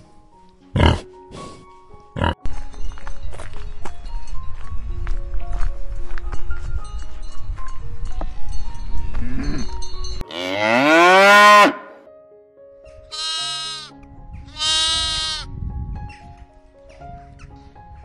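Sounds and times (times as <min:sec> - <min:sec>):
soft background music: 0:00.0 - 0:18.0
cow mooing: 0:10.3 - 0:12.0
sheep bleating: 0:13.1 - 0:13.9, 0:14.6 - 0:15.5.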